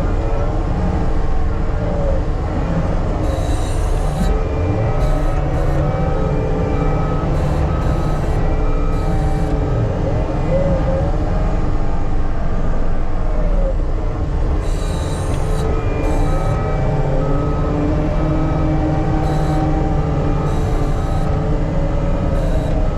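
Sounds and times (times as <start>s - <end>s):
wavering squeal: 3.1s - 11.2s, 14.6s - 22.9s
backup alarm beeping: 3.2s - 6.0s, 6.8s - 9.6s, 14.6s - 16.6s, 19.2s - 21.4s, 22.2s - 22.9s.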